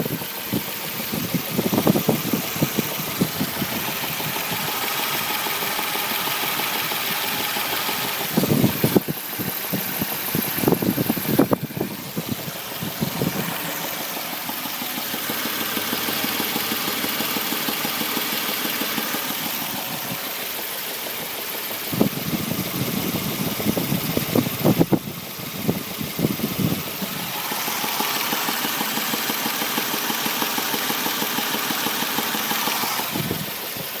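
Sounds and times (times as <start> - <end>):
car engine running with knock: 0.0 - 34.0.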